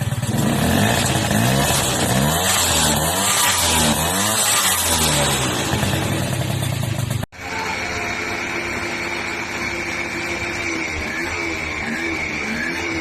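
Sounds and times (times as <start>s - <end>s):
motorbike engine revving: 0.0s - 13.0s
steady high whine: 7.4s - 13.0s.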